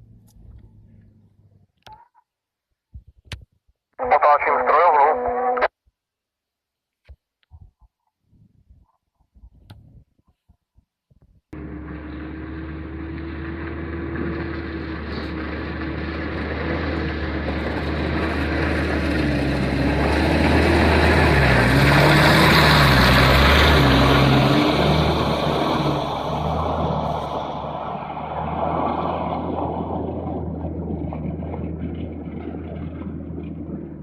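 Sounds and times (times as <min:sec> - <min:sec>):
car engine under load: 0:00.0 - 0:01.9, 0:11.5 - 0:34.0.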